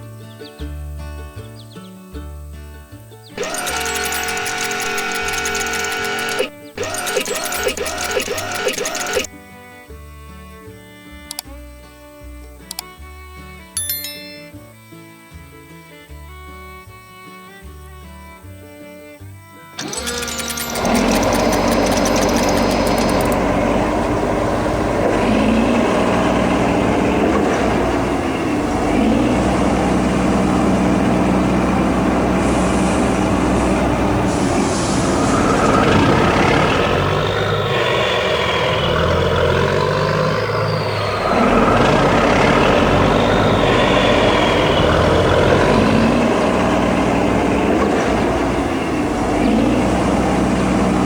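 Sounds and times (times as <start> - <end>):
heavy truck engine running: 3.4 - 9.4, 19.8 - 51.0
hissing noise: 32.4 - 46.0.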